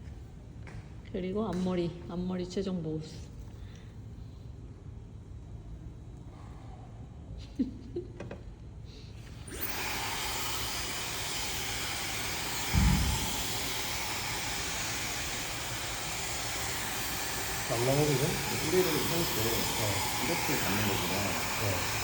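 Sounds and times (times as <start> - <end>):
hair dryer blowing: 9.2 - 22.0
low thump: 12.7 - 13.6.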